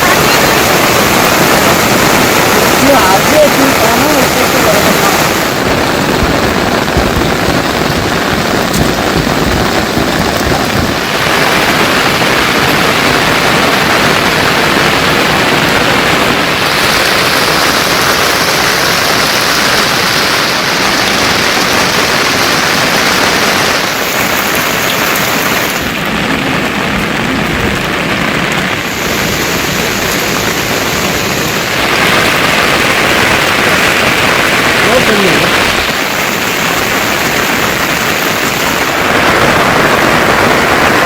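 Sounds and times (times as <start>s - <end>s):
heavy rain falling: 0.0s - 41.0s.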